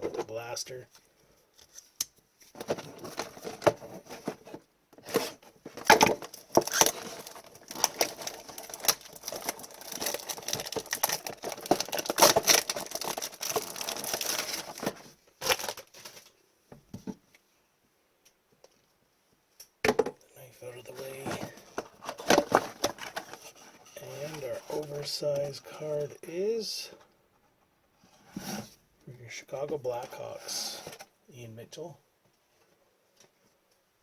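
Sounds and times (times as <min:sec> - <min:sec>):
packaging crinkling and tearing: 0:05.1 - 0:16.3, 0:20.8 - 0:25.1.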